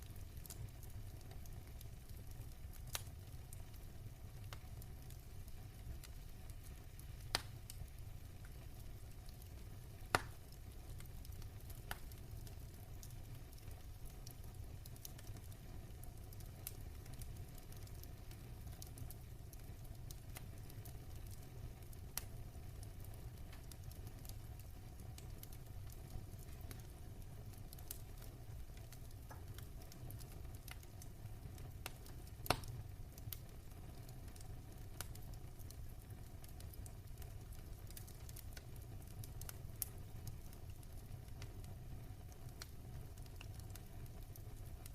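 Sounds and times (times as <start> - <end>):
fire crackling and popping: 0.0 - 44.9
low fire rumble: 0.0 - 44.9.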